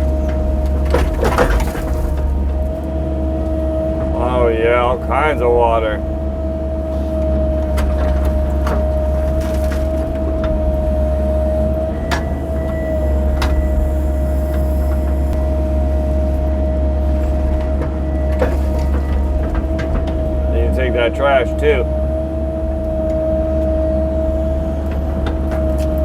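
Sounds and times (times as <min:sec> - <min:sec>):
clicks and knocks of digging: 0:00.0 - 0:02.6
excavator diesel engine running: 0:00.0 - 0:26.0.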